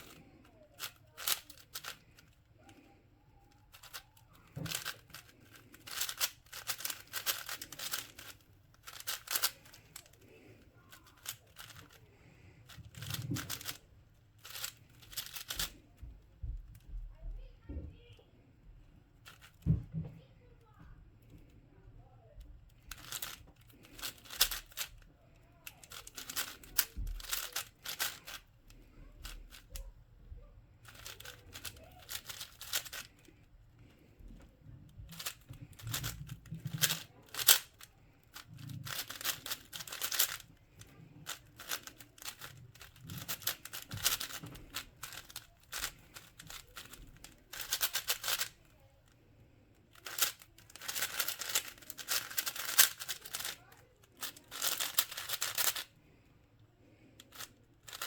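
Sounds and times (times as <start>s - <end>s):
puzzle cube clicking: 0.0s - 15.8s, 22.8s - 25.0s, 25.7s - 29.8s, 30.8s - 33.4s, 35.1s - 48.7s, 49.9s - 55.9s, 57.2s - 58.0s.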